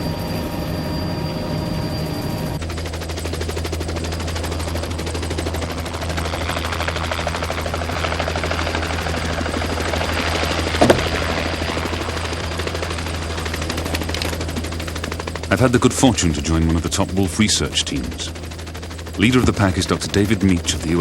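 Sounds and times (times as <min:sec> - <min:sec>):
light aircraft engine drone: 0:00.0 - 0:21.0
sharp knock: 0:10.8 - 0:11.4.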